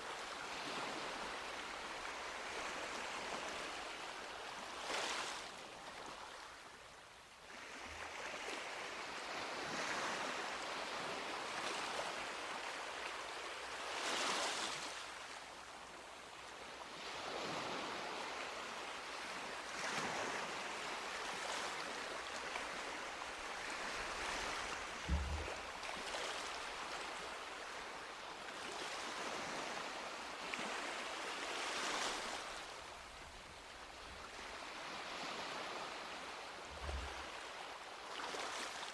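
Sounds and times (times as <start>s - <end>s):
sea waves breaking on a beach: 0.0s - 38.9s
brief low thump: 25.0s - 25.7s, 36.7s - 37.2s.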